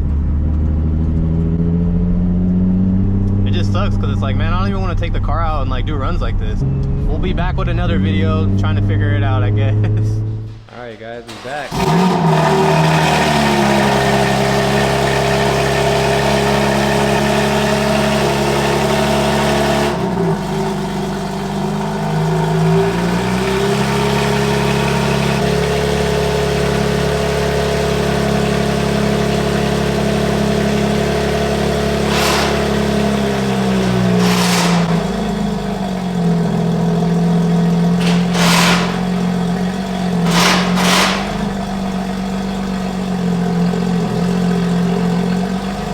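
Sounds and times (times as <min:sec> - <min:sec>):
car engine running: 0:00.0 - 0:45.9
short rushing noises: 0:32.0 - 0:35.7, 0:38.0 - 0:42.4.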